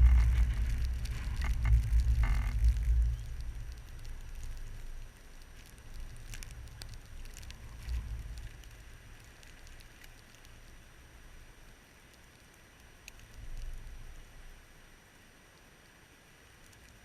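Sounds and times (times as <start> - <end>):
wind gusting against microphone: 0.0 - 4.8
light ticks: 0.0 - 10.8, 12.0 - 14.1, 16.6 - 17.0.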